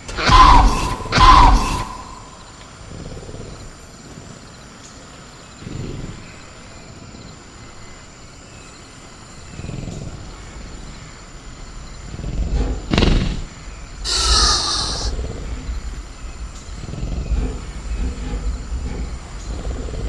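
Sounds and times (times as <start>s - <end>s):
crickets droning: 0.0s - 20.0s
dinosaur growls: 12.0s - 20.0s.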